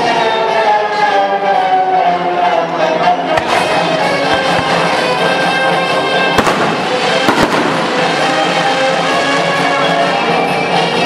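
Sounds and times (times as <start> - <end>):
loud music: 0.0 - 11.0
fireworks bangs: 3.4 - 9.9.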